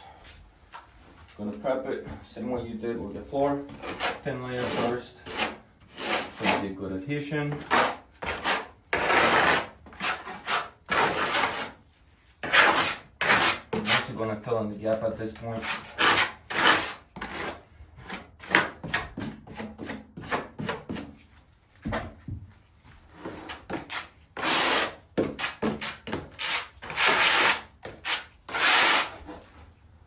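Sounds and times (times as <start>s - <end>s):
trowel scraping mortar: 3.4s - 6.9s, 7.5s - 11.8s, 12.4s - 21.2s, 23.1s - 29.4s.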